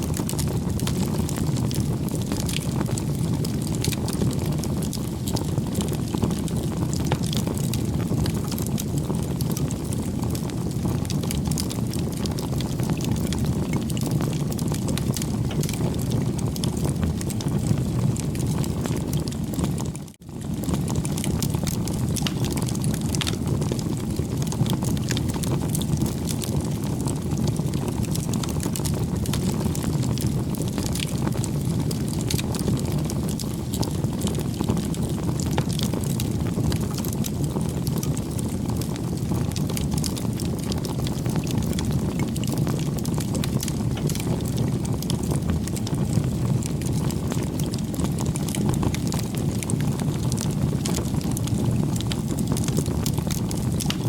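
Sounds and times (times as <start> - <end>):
bonfire flame rushing: 0.0 - 54.0
burning wood crackling: 0.0 - 54.0.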